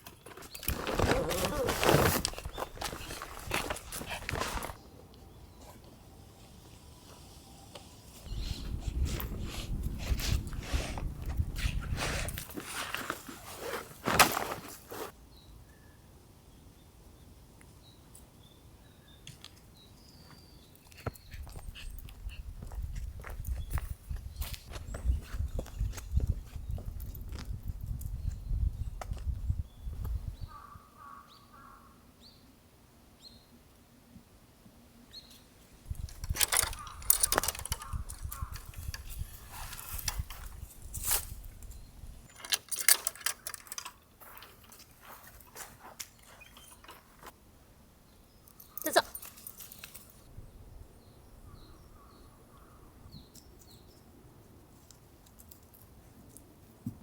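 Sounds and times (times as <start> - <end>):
small birds chirping: 0.0 - 12.4, 15.3 - 32.5, 35.0 - 40.7
low rumbling noise: 8.3 - 12.5.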